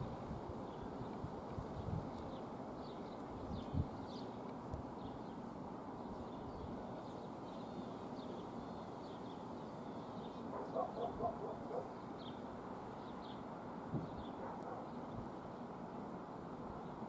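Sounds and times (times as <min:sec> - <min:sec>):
low background noise: 0:00.0 - 0:17.0
small birds chirping: 0:00.6 - 0:15.8
lower bird chirps: 0:06.0 - 0:15.2.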